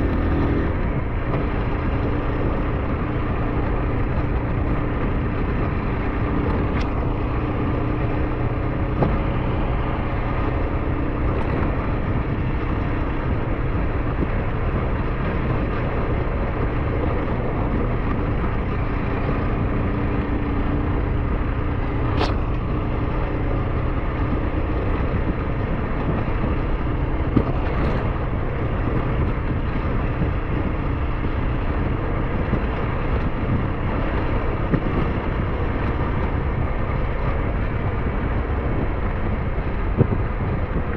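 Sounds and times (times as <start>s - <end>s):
motorcycle engine drone: 0.0s - 40.9s
wind and road noise: 0.0s - 40.9s.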